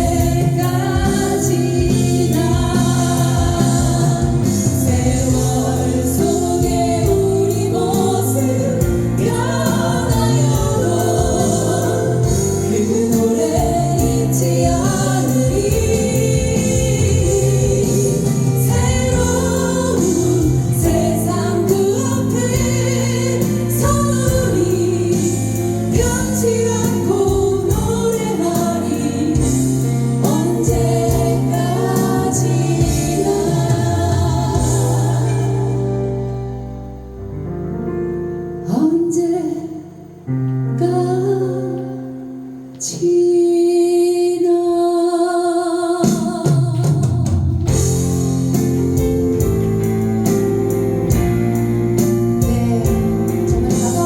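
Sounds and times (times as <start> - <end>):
live instrumental backing: 0.0 - 43.3, 46.0 - 54.0.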